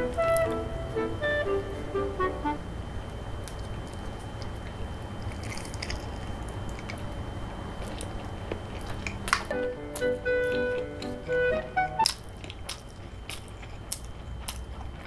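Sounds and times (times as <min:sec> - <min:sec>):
biting and chewing sushi: 0:03.4 - 0:15.0.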